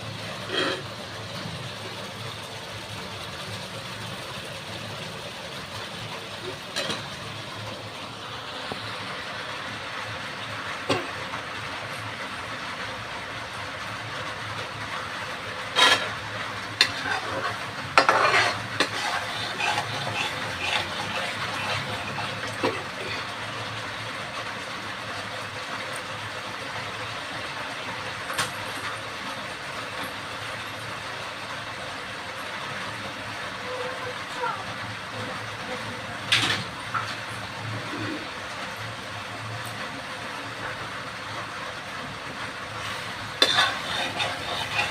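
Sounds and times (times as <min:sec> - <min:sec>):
food sizzling in a pan: 0:00.0 - 0:44.9
metal spoon scraping a pan: 0:00.3 - 0:01.0, 0:15.6 - 0:23.4, 0:42.8 - 0:44.9.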